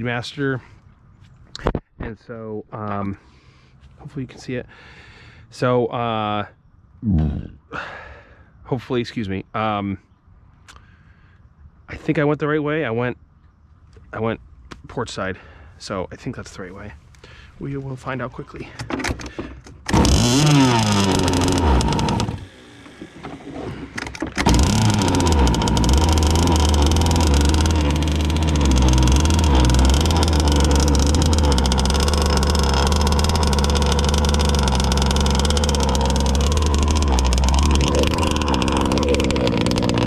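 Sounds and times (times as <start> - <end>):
model boat engine revving: 19.9 - 40.0.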